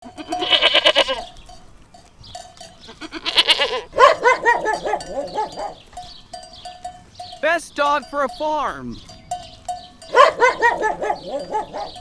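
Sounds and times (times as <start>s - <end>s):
goats bleating: 0.0s - 1.5s, 2.7s - 6.0s.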